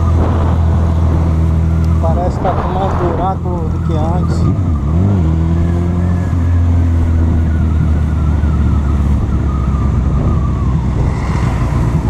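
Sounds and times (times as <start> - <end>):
high whine falling in pitch: 0.0 - 4.6
motorcycle engine running: 0.0 - 10.8
wind and road noise: 0.0 - 12.0.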